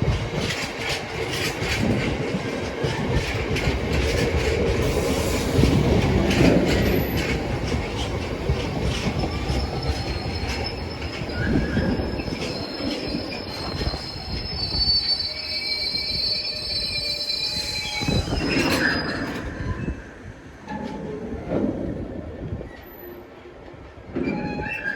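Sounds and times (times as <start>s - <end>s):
train wheels clicking over rail joints: 0.0s - 14.8s
wheels squealing on rails: 0.0s - 23.4s, 24.0s - 24.9s.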